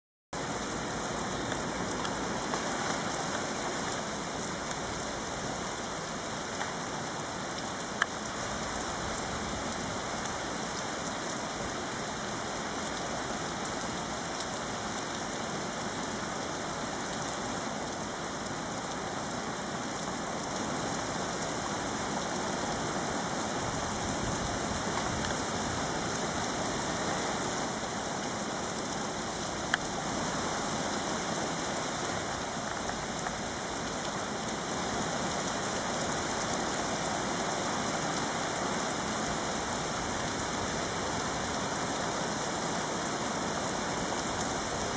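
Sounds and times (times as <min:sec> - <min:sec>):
heavy rain falling: 0:00.4 - 0:44.9.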